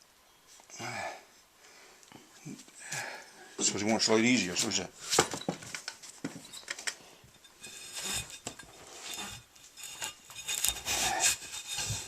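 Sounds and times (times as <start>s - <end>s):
small clicks and clinks: 5.4s - 7.6s
rubbing on tire: 7.6s - 12.0s.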